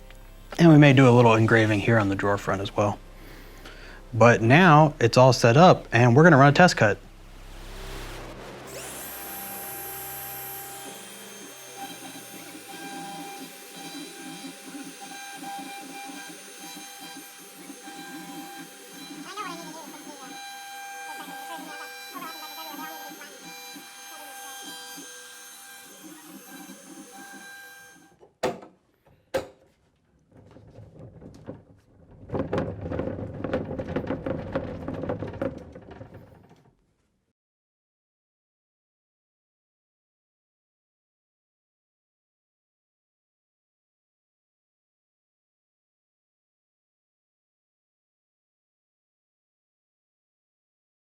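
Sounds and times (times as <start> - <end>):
router spindle high whine: 0.0 - 3.1, 7.8 - 28.1
clattery cutting noise: 8.7 - 28.1
machine axes uneven whirring: 8.7 - 28.1.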